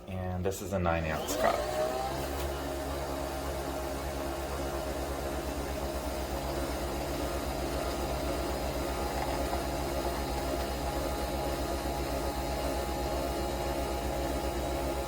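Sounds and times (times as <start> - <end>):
coffee machine humming: 0.8 - 15.0.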